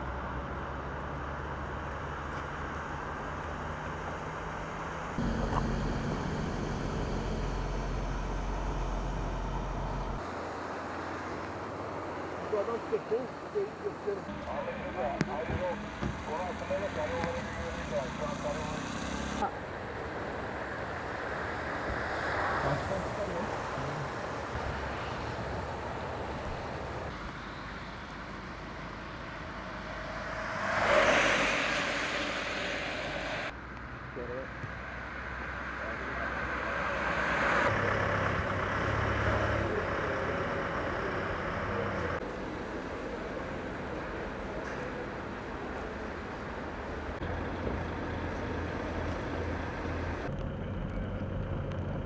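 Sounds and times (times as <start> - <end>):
outdoor background noise: 0.0 - 52.0
road vehicle passing: 0.0 - 52.0
low hum: 4.9 - 10.2, 14.2 - 21.5, 22.8 - 33.8.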